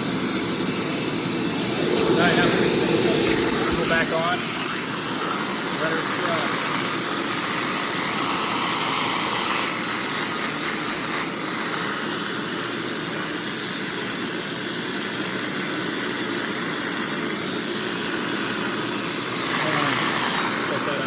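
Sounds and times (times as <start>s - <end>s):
carpet cleaner motor whirring: 0.0s - 13.4s, 18.8s - 21.0s
brushes hissing: 1.2s - 4.9s.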